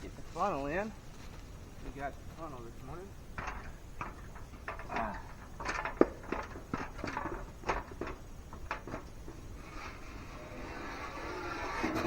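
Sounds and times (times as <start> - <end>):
feeder parts knocking and clattering: 3.3 - 12.0.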